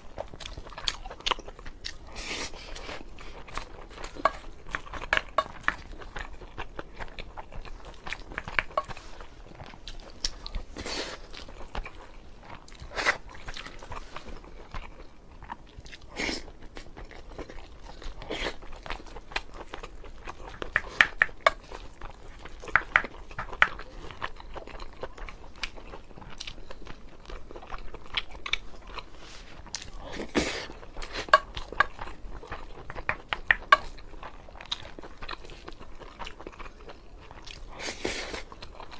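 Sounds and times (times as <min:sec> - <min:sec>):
person chewing food: 0:00.0 - 0:38.9
wet mouth clicks and smacks: 0:22.7 - 0:23.8.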